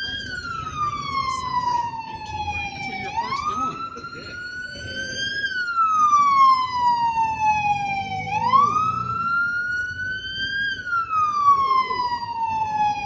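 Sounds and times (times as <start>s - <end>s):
electronic siren wailing: 0.0s - 13.0s.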